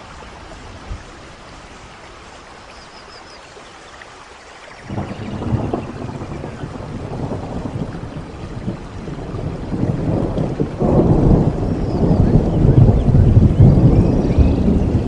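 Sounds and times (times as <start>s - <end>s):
steady rain: 0.0s - 15.0s
rolling rumble of thunder: 4.8s - 15.0s.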